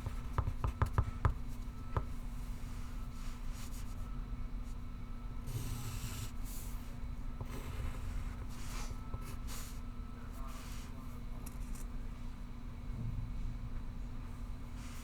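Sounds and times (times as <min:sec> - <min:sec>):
pencil writing on paper: 0:00.0 - 0:01.7, 0:05.5 - 0:09.8
low room hum: 0:00.0 - 0:15.0.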